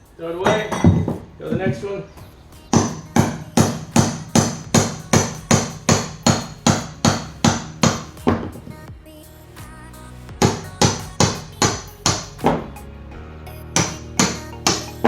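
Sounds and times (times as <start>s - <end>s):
hammer striking chisel: 0.4s - 1.3s, 2.7s - 8.6s, 10.4s - 12.7s, 13.8s - 15.0s.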